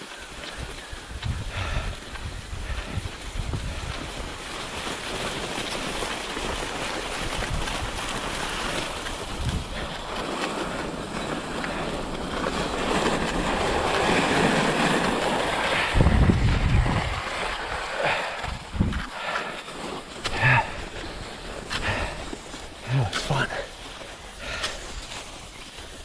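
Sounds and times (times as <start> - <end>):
skis hissing over snow: 0.0 - 26.0
wind buffeting microphone: 0.0 - 26.0.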